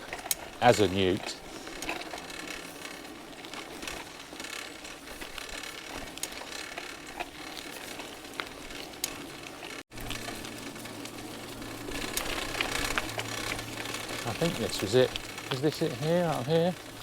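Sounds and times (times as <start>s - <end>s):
bicycle tyres rolling on rough track: 0.0s - 17.0s
light clicks and ticks: 0.1s - 11.2s.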